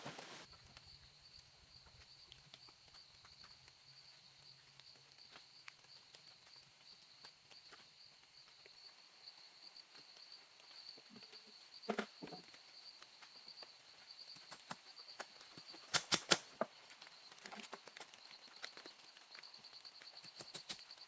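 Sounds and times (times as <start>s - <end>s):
insects trilling: 0.1s - 21.0s.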